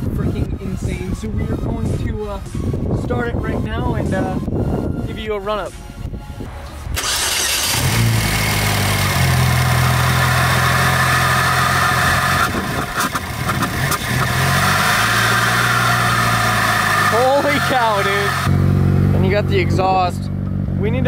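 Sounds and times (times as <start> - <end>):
car engine starting and idling: 6.6 - 21.0.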